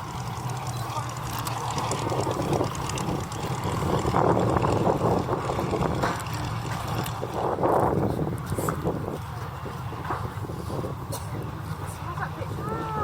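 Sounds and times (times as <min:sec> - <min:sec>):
propeller aircraft engine: 0:00.0 - 0:13.0
wind buffeting microphone: 0:00.0 - 0:13.0.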